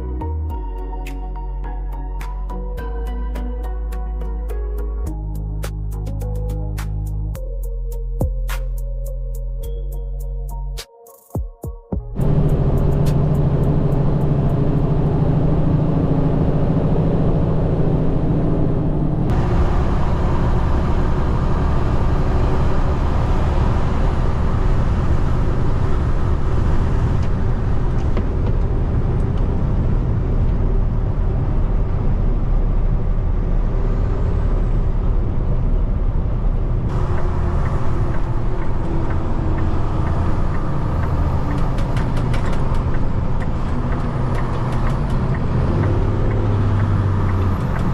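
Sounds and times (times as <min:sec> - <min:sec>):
road noise: 0:12.1 - 0:47.9
truck diesel engine rumbling: 0:12.2 - 0:47.9.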